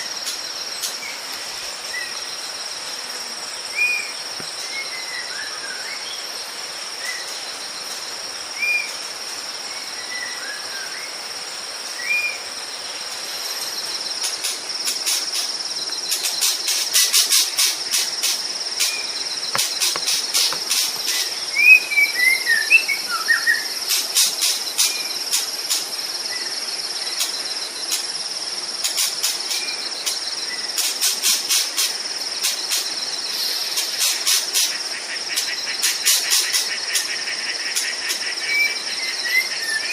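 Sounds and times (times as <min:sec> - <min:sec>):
high insect drone: 0:00.0 - 0:39.9
rapid pulsing insect chirring: 0:11.1 - 0:39.4
whistled bird notes: 0:19.7 - 0:23.7.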